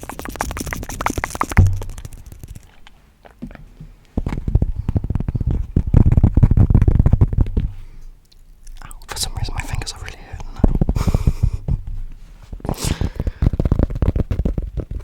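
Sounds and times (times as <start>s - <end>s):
fast tapping and scratching: 0.0s - 2.8s, 4.4s - 7.8s, 9.1s - 11.9s, 12.5s - 15.0s
heavy low thud: 1.6s - 2.3s.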